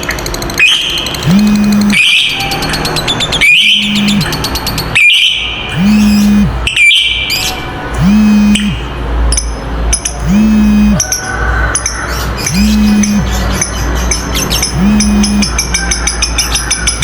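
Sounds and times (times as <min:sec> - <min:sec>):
lovebirds chattering: 0:00.4 - 0:17.0
low hum: 0:01.2 - 0:02.0, 0:03.7 - 0:04.3, 0:05.7 - 0:06.7, 0:07.5 - 0:09.3, 0:10.2 - 0:11.0, 0:12.5 - 0:13.3, 0:14.7 - 0:15.5.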